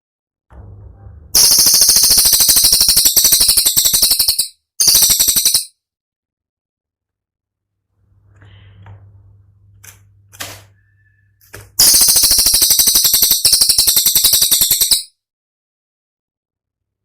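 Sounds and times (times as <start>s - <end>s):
faint low hum: 0.5s - 1.4s, 7.7s - 11.8s
songbird rattling trill: 1.4s - 5.7s, 11.8s - 15.1s.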